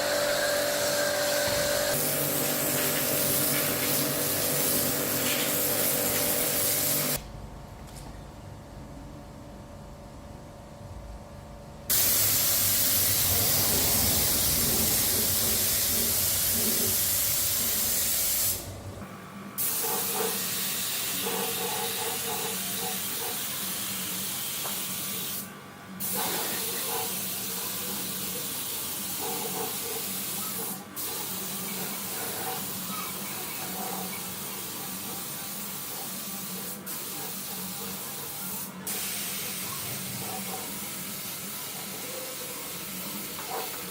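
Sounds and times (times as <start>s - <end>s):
spray gun hissing: 0.0s - 7.2s, 11.9s - 18.8s, 28.4s - 39.7s.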